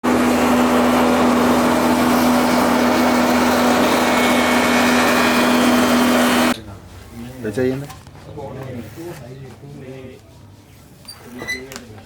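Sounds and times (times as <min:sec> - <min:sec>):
machine hum: 0:00.0 - 0:06.6.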